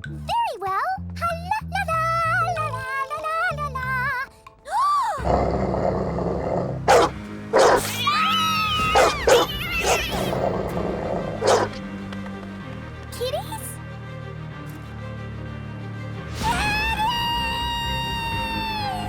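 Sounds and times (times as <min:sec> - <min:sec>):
cartoon dogs growling: 0:05.2 - 0:08.0, 0:08.8 - 0:11.8
dramatic music: 0:05.2 - 0:19.0
dog barks: 0:06.6 - 0:07.9, 0:08.8 - 0:11.8.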